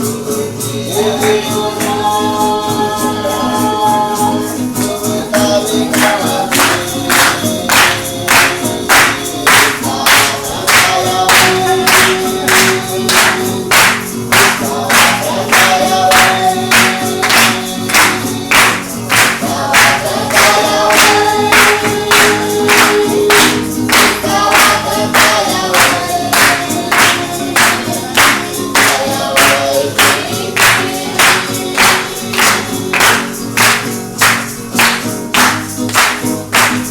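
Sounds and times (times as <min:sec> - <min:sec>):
group of voices chanting: 0:04.9 - 0:33.7.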